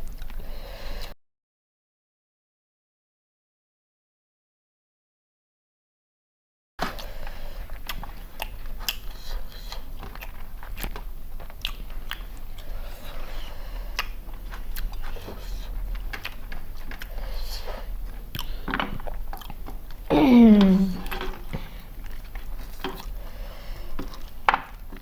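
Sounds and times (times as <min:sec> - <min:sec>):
chewing with crunches: 0:06.8 - 0:20.1, 0:20.9 - 0:25.0.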